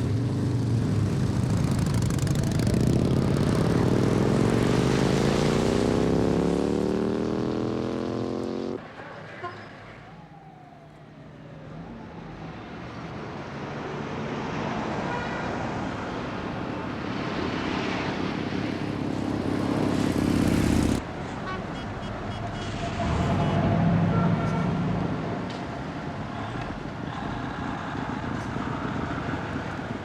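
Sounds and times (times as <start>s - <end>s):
motorcycle engine: 0.0s - 8.9s, 19.1s - 21.0s
road noise: 0.0s - 30.0s.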